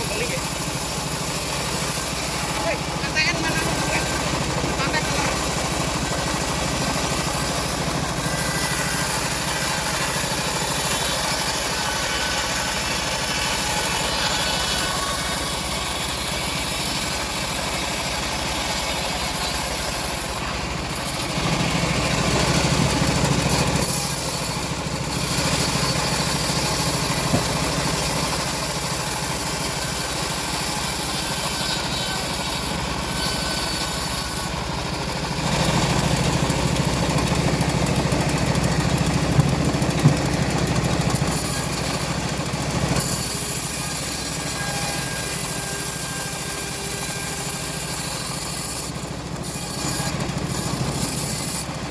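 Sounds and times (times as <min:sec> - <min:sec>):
bandsaw cutting a log: 0:00.0 - 0:51.9.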